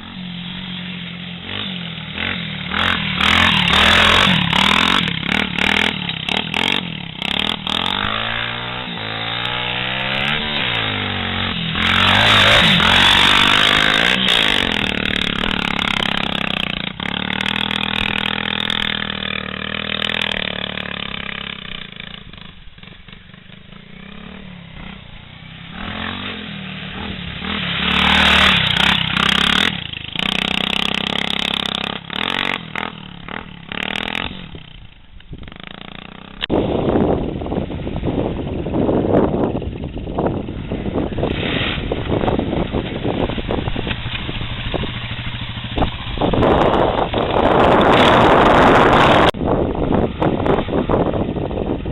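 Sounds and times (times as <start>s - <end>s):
off-road engines revving: 0.0s - 36.5s, 40.1s - 49.4s.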